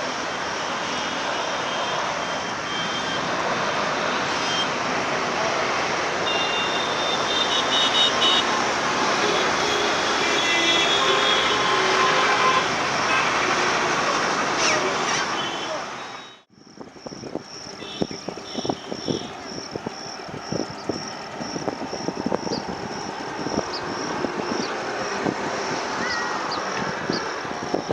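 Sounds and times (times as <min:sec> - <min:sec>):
high engine whine: 0:16.2 - 0:27.9
jet engines roaring: 0:17.4 - 0:27.9.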